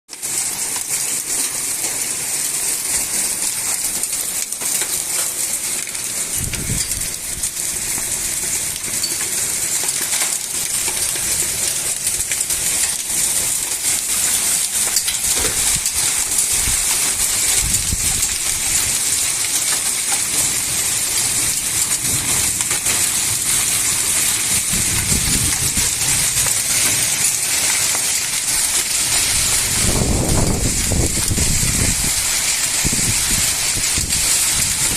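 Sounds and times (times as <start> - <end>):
hailstones ticking on hard surfaces: 0.1 - 34.9
heavy rain pouring: 0.1 - 34.9
low thunder rumbles: 6.3 - 8.7, 15.3 - 19.2, 20.5 - 27.3, 28.5 - 34.9.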